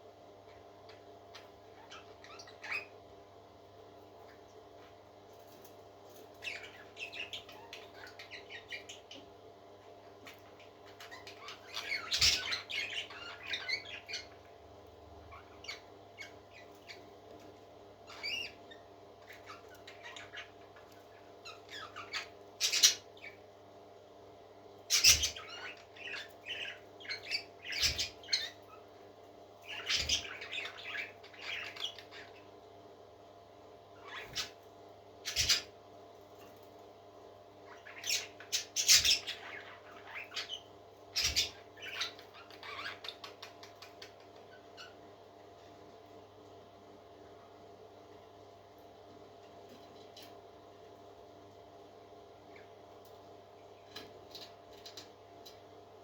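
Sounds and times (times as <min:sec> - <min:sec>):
parrot chick squeaking: 0:01.8 - 0:03.0, 0:10.9 - 0:14.4, 0:18.1 - 0:20.6, 0:21.4 - 0:23.4, 0:24.9 - 0:28.8, 0:29.7 - 0:32.4, 0:35.2 - 0:35.7, 0:37.7 - 0:45.0.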